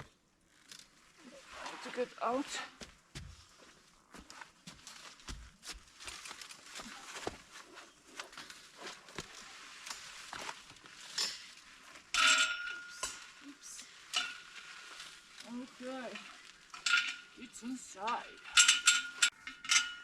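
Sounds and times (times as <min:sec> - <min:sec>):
rustling and scraping: 0:00.5 - 0:20.0
footsteps: 0:01.2 - 0:11.0
metallic clink: 0:12.1 - 0:13.4, 0:15.9 - 0:20.0.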